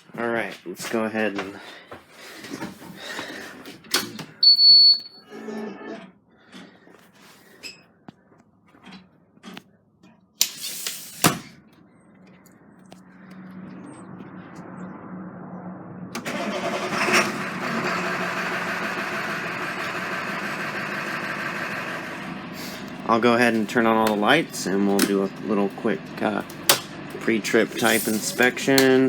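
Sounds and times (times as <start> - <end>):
diesel engine starting and idling: 11.1 - 29.0.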